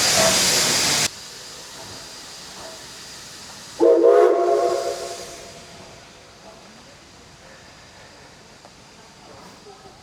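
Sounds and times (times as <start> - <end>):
steam locomotive hissing: 0.0 - 10.0
steam whistle chord: 3.8 - 5.6.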